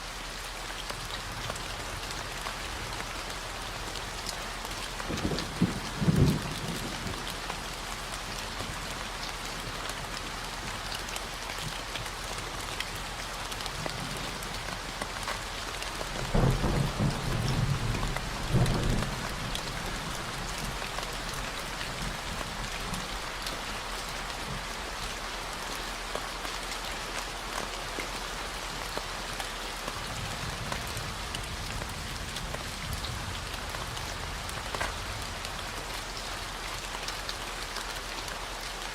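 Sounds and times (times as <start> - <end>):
steady rain falling: 0.0 - 38.9
low thunder rumble: 16.0 - 24.0.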